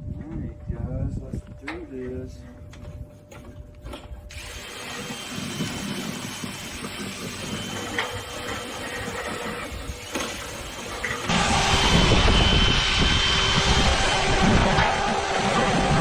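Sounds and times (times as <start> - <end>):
motorised tool rattling: 3.4 - 11.3.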